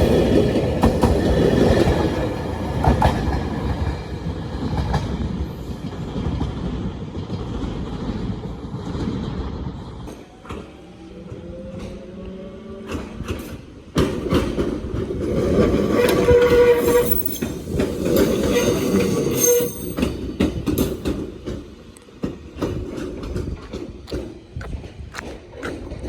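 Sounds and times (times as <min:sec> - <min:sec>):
train rushing past: 0:00.0 - 0:25.0
wheels clattering over rail joints: 0:12.8 - 0:26.0.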